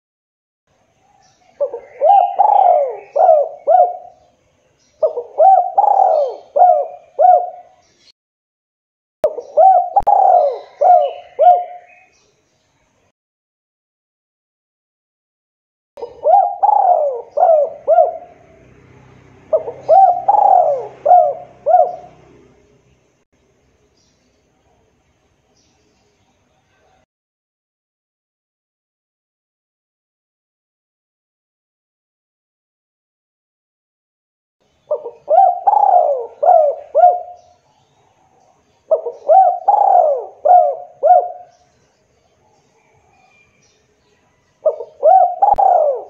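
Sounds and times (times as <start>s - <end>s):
dove cooing: 1.6s - 4.3s, 5.0s - 7.8s, 9.3s - 12.1s, 16.0s - 18.8s, 19.4s - 22.6s, 34.9s - 37.6s, 38.9s - 41.7s, 44.6s - 46.0s.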